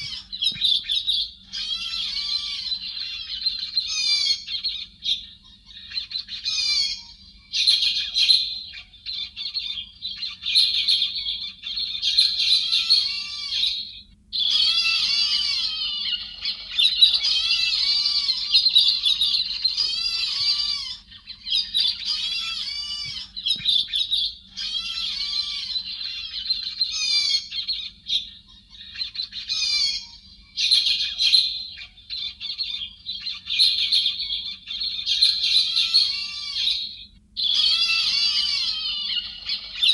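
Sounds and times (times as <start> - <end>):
faint steady hum: 0.0 - 39.9
thrush whistling and chattering: 0.0 - 39.9.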